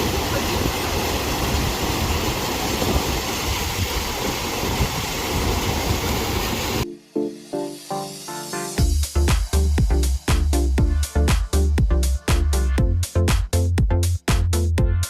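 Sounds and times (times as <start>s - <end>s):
stream rushing over waterfalls: 0.0s - 6.8s.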